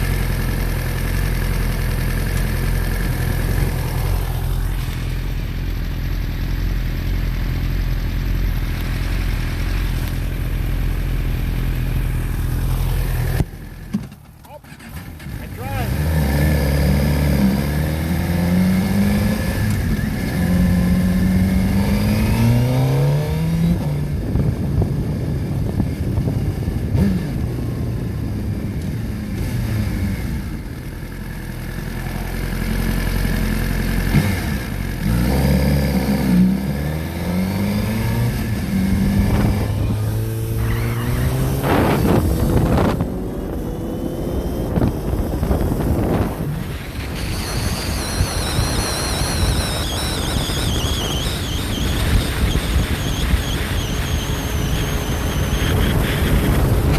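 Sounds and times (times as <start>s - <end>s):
motorcycle engine accelerating: 0.0s - 56.9s
wind on microphone: 37.6s - 56.9s.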